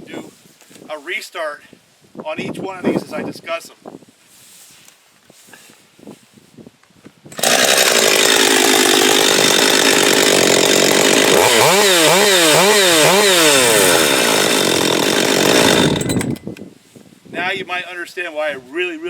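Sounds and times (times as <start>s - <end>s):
chainsaw running and revving: 7.3s - 16.4s.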